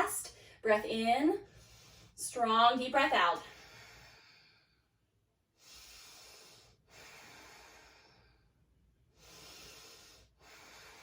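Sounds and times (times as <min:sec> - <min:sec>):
woman breathing deeply: 0:03.5 - 0:05.0, 0:05.6 - 0:11.0.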